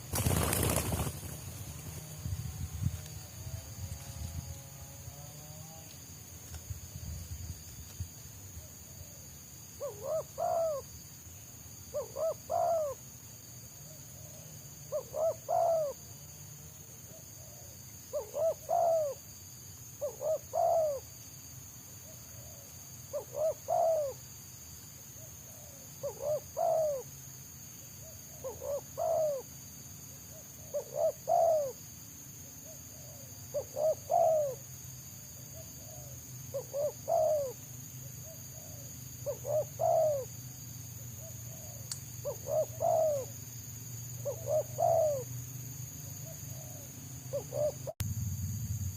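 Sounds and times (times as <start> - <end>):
faint high insect ringing: 0.0 - 48.9
dove cooing: 9.8 - 10.9, 11.9 - 13.0, 14.2 - 16.0, 17.1 - 19.3, 20.0 - 21.1, 22.4 - 24.2, 25.5 - 27.1, 28.3 - 29.5, 30.3 - 31.8, 32.9 - 34.6, 35.6 - 37.6, 38.2 - 40.3, 41.2 - 43.3, 44.2 - 45.3, 46.2 - 48.0.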